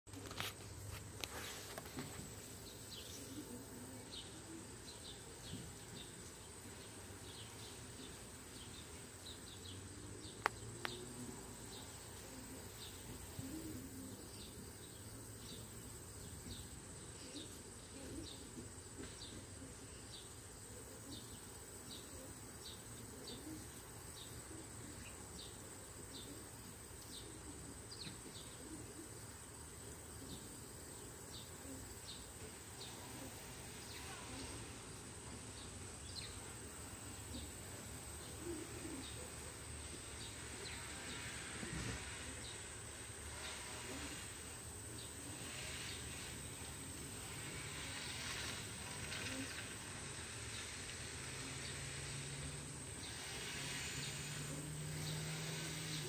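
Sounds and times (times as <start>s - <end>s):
faint bird chirping: 0.1s - 56.0s.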